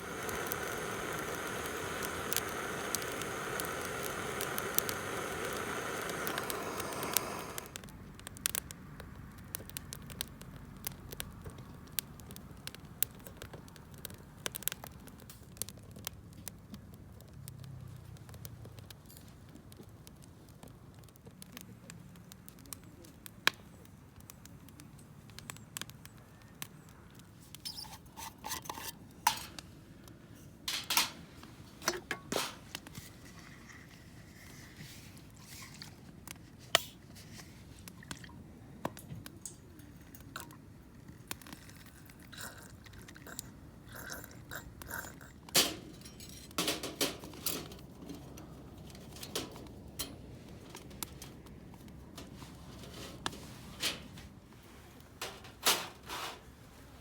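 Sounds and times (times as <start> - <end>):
objects being handled: 27.5 - 29.7, 30.4 - 43.4, 44.5 - 57.0.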